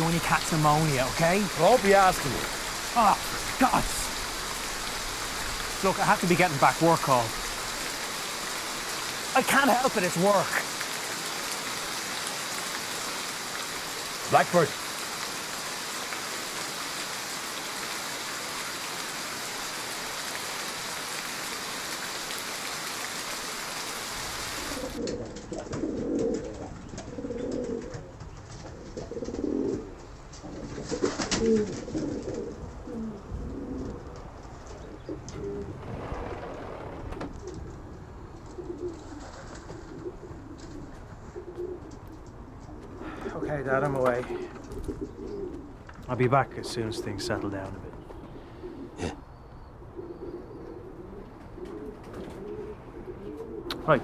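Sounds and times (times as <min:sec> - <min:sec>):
pigeons cooing: 0:00.0 - 0:15.8, 0:23.5 - 0:43.4, 0:44.2 - 0:46.1, 0:48.0 - 0:54.0
rain hiss: 0:00.0 - 0:25.0, 0:35.0 - 0:38.6.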